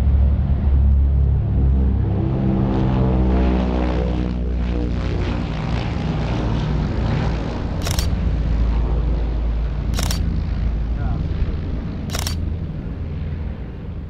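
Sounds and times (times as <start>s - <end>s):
propeller aircraft engines roaring: 0.0s - 14.0s
sharp clicks: 7.8s - 8.2s, 10.0s - 10.3s, 12.1s - 12.4s.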